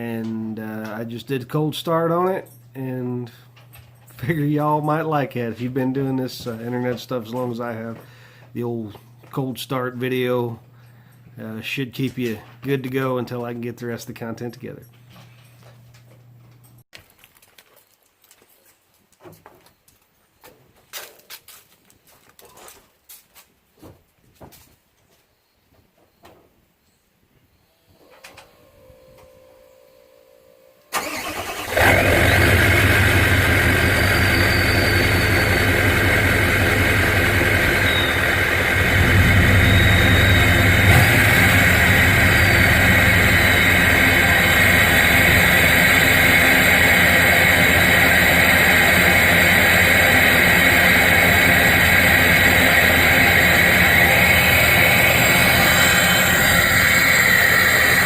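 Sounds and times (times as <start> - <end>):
diesel engine loud idle: 31.0 - 58.0
starter cranking: 31.0 - 58.0.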